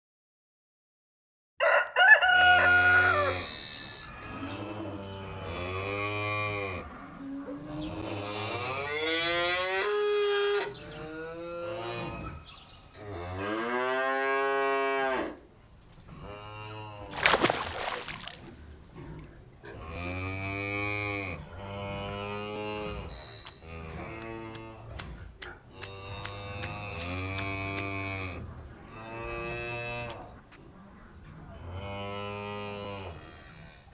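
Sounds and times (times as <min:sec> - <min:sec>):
cattle mooing: 0:19.7 - 0:24.8.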